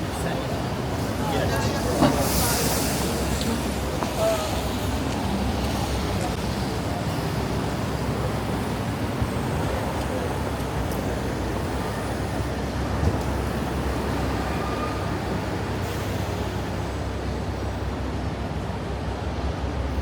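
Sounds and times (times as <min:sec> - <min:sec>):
road vehicles rumbling past: 0:00.0 - 0:20.0.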